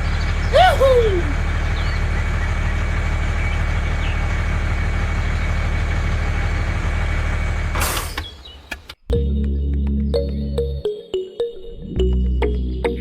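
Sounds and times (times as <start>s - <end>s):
engine idling: 0.0s - 8.9s.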